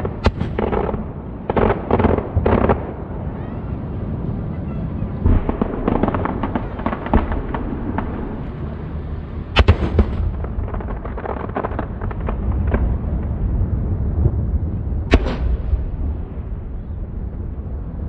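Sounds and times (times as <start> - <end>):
sharp loud bangs: 9.6 - 10.8, 15.1 - 15.7.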